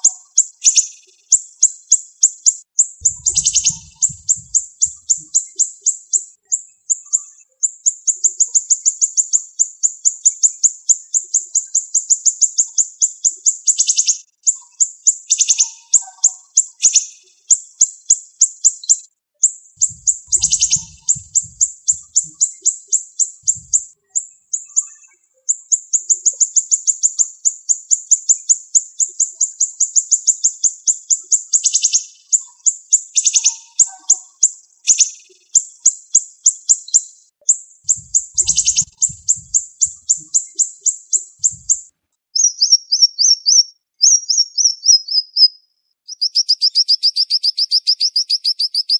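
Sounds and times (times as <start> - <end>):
songbird singing fast high notes: 3.0 - 5.4, 19.8 - 22.5, 23.4 - 23.9, 37.9 - 40.6, 41.2 - 41.8.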